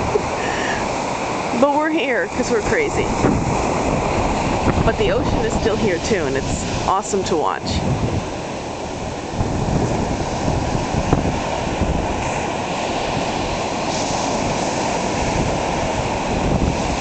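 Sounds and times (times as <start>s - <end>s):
waves breaking on beach: 0.0s - 17.0s
wind buffeting microphone: 0.0s - 17.0s.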